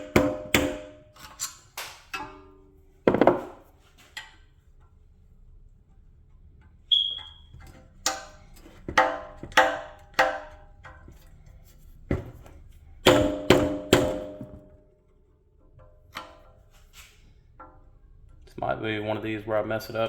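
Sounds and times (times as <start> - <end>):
hammer striking metal: 0.0 - 1.2, 13.0 - 14.8.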